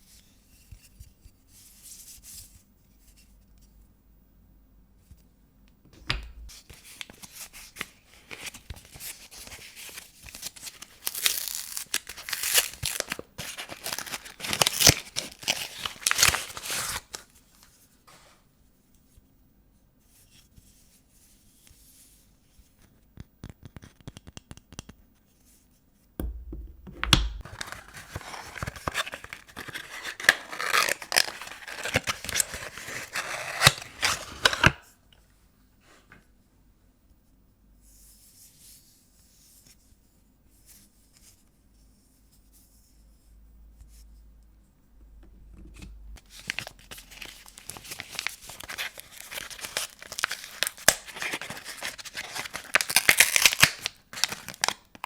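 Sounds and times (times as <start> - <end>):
wrapping paper tearing and crinkling: 6.5 - 17.3, 27.4 - 34.8, 46.2 - 55.0.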